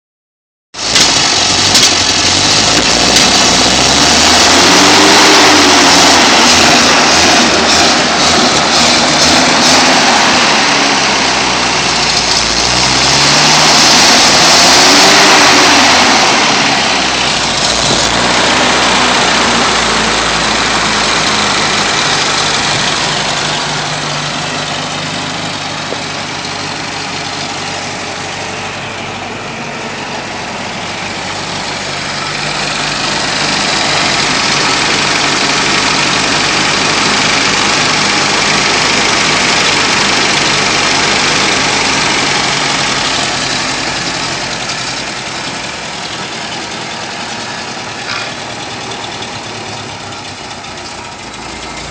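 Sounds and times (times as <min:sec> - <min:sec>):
misfiring car engine revving: 0:00.8 - 0:51.9.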